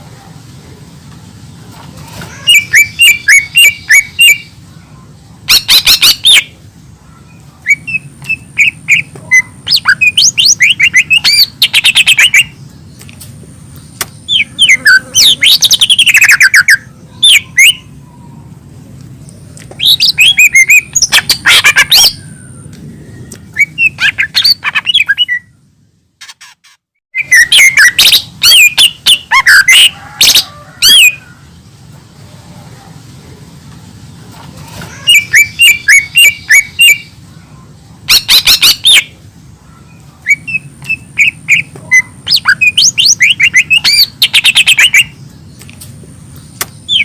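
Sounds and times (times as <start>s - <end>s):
bird singing rapid chirps and whistles: 2.4s - 4.6s, 5.5s - 6.6s, 7.2s - 12.6s, 13.8s - 17.9s, 19.7s - 25.6s, 27.1s - 31.2s, 35.0s - 37.2s, 38.1s - 39.2s, 39.8s - 45.6s, 46.4s - 47.0s.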